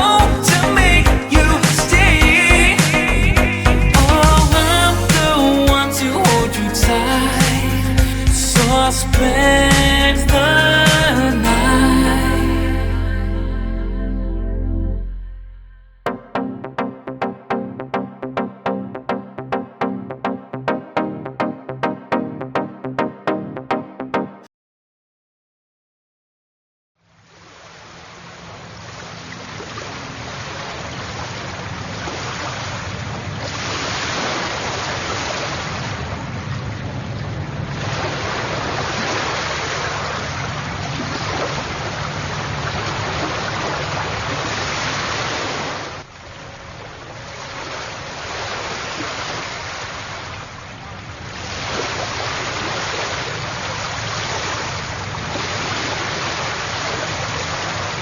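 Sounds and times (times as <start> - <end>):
rushing water: 0.0 - 13.1, 27.2 - 58.0
low rumble: 0.0 - 16.6.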